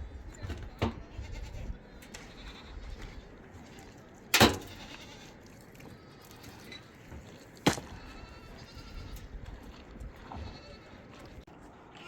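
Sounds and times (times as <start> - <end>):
livestock bleating: 0.7 - 6.9, 7.9 - 12.0.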